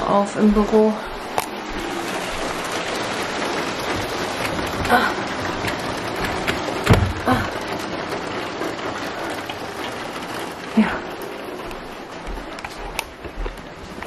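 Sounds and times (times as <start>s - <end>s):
heavy rain on a roof window: 1.2s - 14.0s
knocks: 5.6s - 7.4s.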